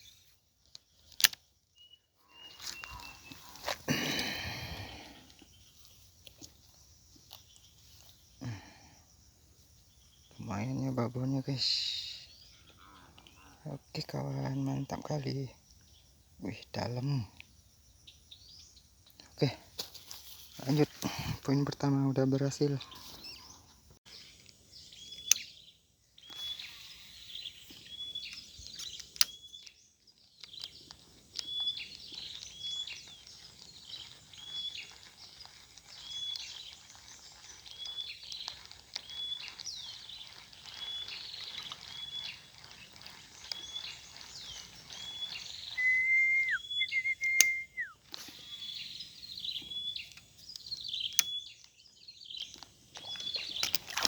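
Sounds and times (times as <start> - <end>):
bird chirping: 0.0 - 19.6, 20.5 - 54.0
whistled notes with quick drop: 45.7 - 47.9.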